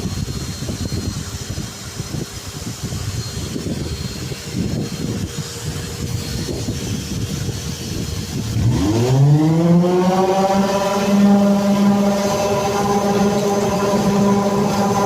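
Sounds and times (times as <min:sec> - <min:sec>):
electric motor spinning up: 0:03.4 - 0:15.0
rough low rumbling: 0:04.3 - 0:15.0.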